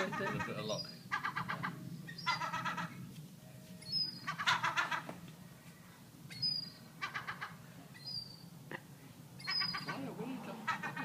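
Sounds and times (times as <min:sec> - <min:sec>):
young seagull stuttering calls: 0:00.0 - 0:03.0, 0:04.2 - 0:05.2, 0:06.4 - 0:07.6, 0:09.4 - 0:11.0.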